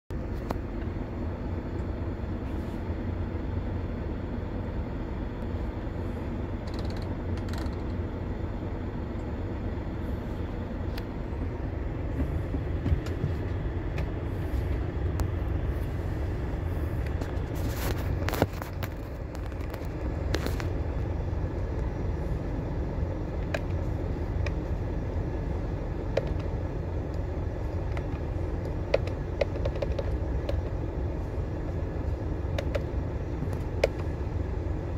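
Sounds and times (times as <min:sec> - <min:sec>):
heavy vehicle engine rumble: 0:00.1 - 0:34.9.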